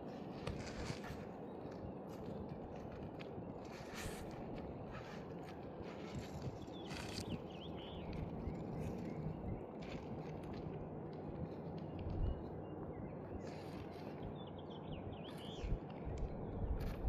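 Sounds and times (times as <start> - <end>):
outdoor background noise: 0.0 - 17.0
birds chirping: 4.8 - 17.0.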